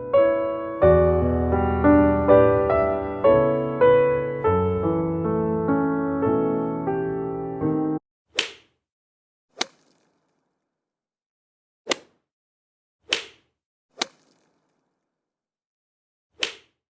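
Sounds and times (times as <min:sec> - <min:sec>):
short sharp smacks: 0:08.3 - 0:08.8, 0:09.6 - 0:10.2, 0:11.9 - 0:12.3, 0:13.1 - 0:14.6, 0:16.4 - 0:16.8.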